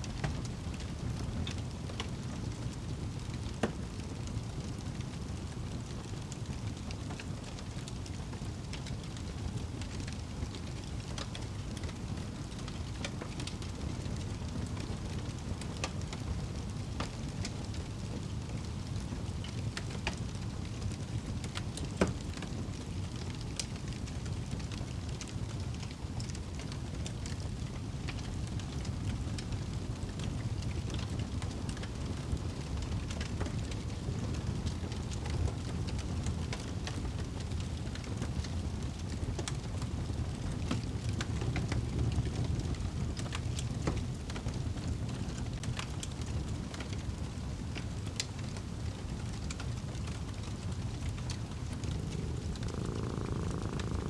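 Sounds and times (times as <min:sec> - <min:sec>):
fireplace fire crackling: 0:00.0 - 0:54.0.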